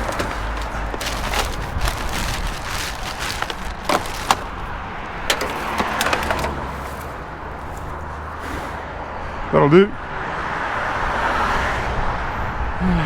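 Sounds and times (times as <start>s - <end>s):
scrap metal knocking and clicking: 0.0s - 8.4s.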